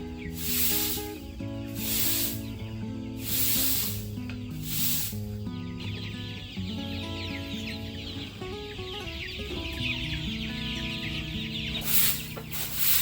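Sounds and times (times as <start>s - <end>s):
background music of held notes: 0.0s - 13.0s
chickens peeping and clucking: 0.0s - 13.0s
brief hissing noise: 0.4s - 2.5s, 3.2s - 5.2s, 11.8s - 13.0s.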